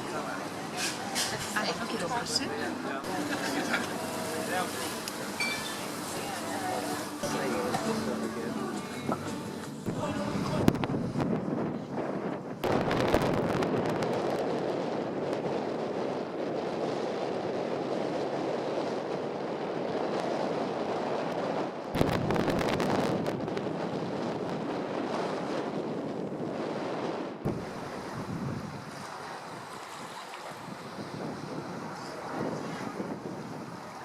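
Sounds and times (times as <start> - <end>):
sea rushing: 0.0 - 34.0
wind buffeting microphone: 0.0 - 34.0.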